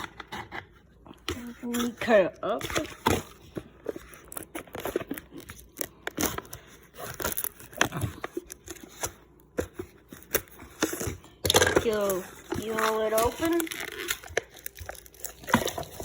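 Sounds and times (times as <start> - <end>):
wrapper being torn open: 4.1 - 9.1, 10.4 - 16.0.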